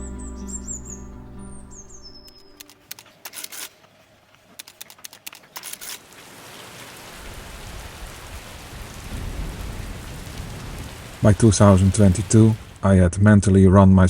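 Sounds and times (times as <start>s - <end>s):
raindrop ticks: 4.3s - 12.8s
rain hiss: 4.6s - 12.8s.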